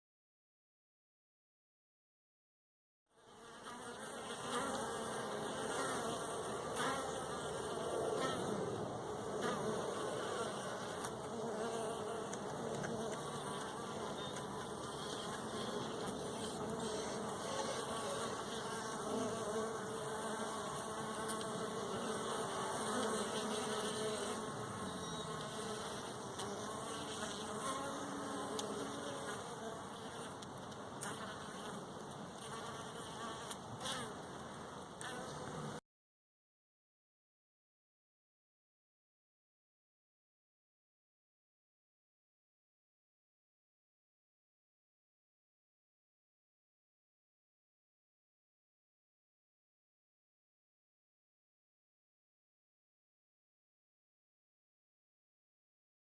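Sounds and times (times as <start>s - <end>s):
honey bees buzzing: 3.2s - 30.4s.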